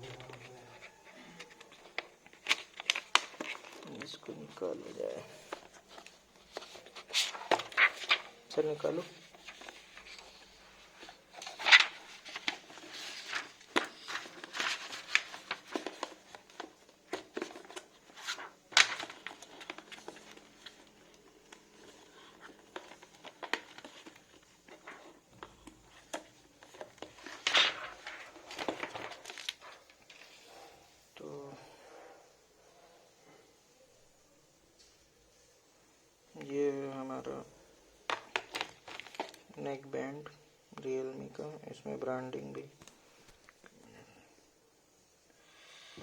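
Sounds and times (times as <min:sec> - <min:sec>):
packaging crinkling and rustling: 0:00.0 - 0:30.6, 0:37.9 - 0:40.4.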